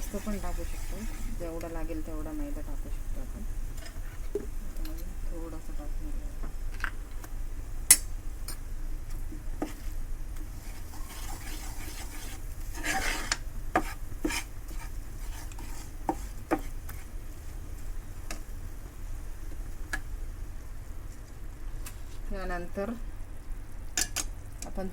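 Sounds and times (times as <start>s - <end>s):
spoon scraping a pan: 0.0s - 1.8s, 3.6s - 5.2s, 9.6s - 17.2s
spoon clicking against pan: 7.9s - 8.6s.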